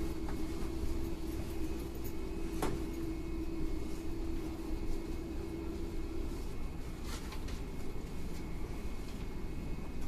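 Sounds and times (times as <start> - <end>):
electric train interior hum and rumble: 0.0 - 10.0.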